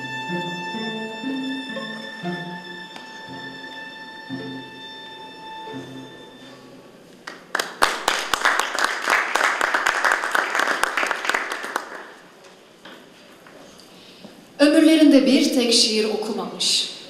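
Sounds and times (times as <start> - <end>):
audience applauding: 7.2 - 12.4.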